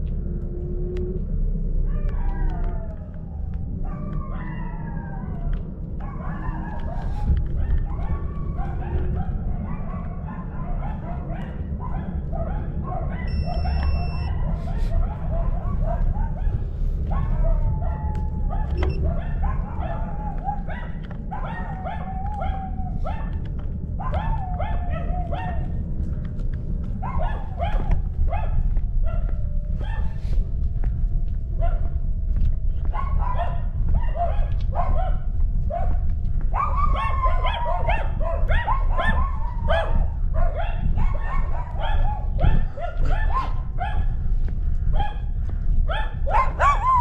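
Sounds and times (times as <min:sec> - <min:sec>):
low rumble: 0:00.0 - 0:47.0
dog barking and whining: 0:03.8 - 0:23.4, 0:36.6 - 0:44.1, 0:45.9 - 0:47.0.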